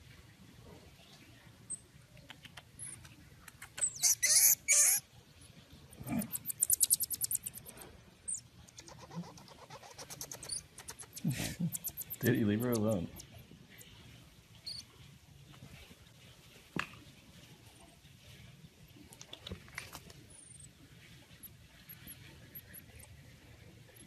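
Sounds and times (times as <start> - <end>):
marmosets chirping: 2.7 - 5.0, 5.9 - 13.4, 14.6 - 14.9.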